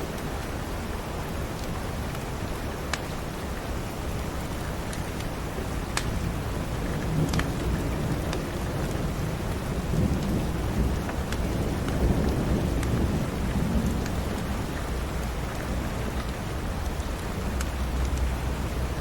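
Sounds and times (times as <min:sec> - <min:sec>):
steady rain: 0:00.0 - 0:19.0
crackling wood fire pops: 0:05.9 - 0:06.3, 0:07.0 - 0:13.1
thunder rolling: 0:06.2 - 0:16.1.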